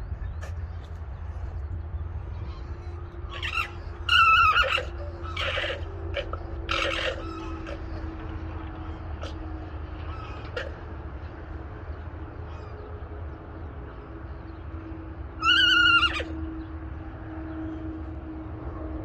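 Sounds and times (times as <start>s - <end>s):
steady low rumble: 0.0s - 15.4s
alpaca high-pitched call: 3.3s - 8.4s, 15.4s - 16.4s.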